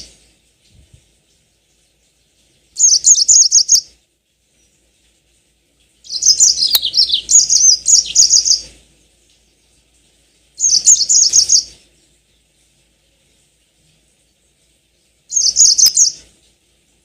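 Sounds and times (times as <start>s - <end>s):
canary trilling song: 2.8s - 3.9s, 6.0s - 8.7s, 10.6s - 11.8s, 15.3s - 16.3s.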